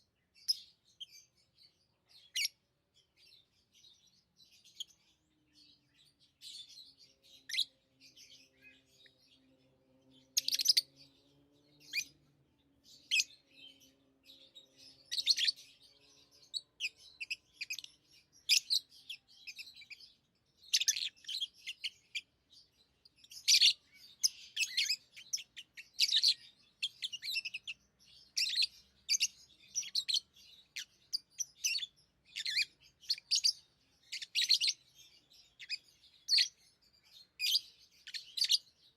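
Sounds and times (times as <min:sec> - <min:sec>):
lovebirds chirping: 0:00.0 - 0:38.9.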